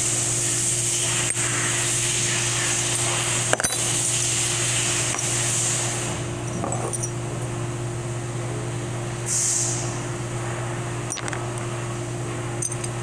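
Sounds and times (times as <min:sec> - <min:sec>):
hiss: 0:00.0 - 0:03.4, 0:09.3 - 0:10.0
steady mechanical hum: 0:00.0 - 0:13.0
metal parts clicking: 0:03.4 - 0:05.4, 0:06.4 - 0:07.2, 0:11.1 - 0:11.4, 0:12.6 - 0:13.0.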